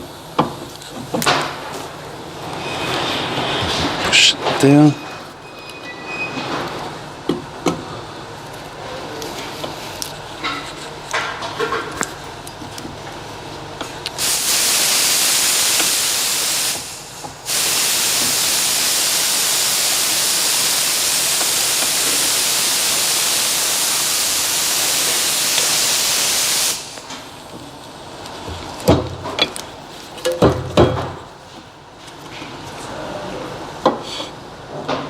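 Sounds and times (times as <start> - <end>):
aerosol spray hissing: 14.2 - 27.1.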